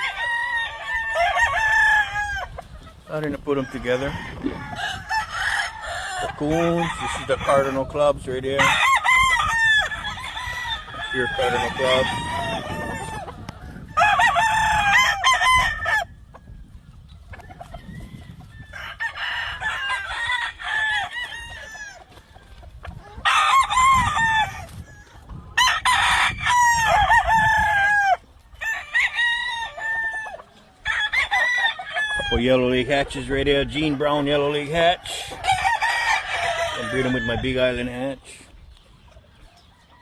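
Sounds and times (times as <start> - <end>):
roosters crowing: 0.0 - 40.0.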